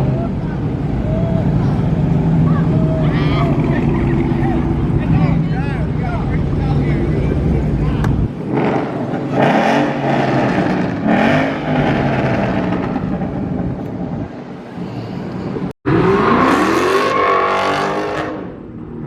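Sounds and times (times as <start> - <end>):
car engine revving hard: 8.4 - 13.4, 15.9 - 18.6.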